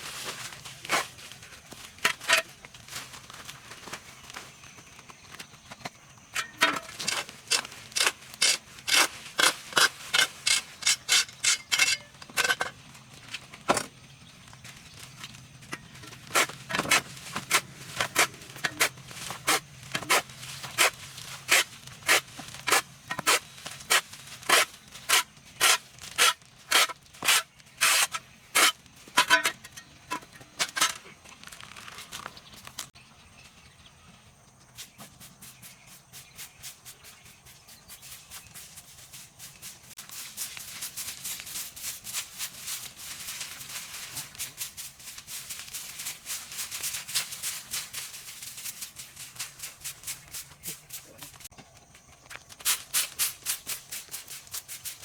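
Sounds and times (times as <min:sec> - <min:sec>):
faster lighter scraping strokes: 0:16.3 - 0:28.8.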